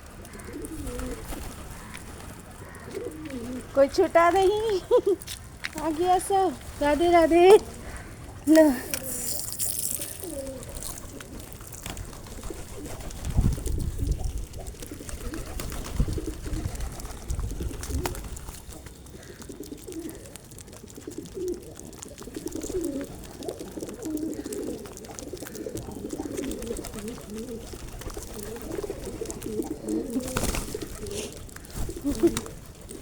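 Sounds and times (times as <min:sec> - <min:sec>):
flock of birds calling: 0:00.0 - 0:03.8
rustling: 0:05.2 - 0:33.0.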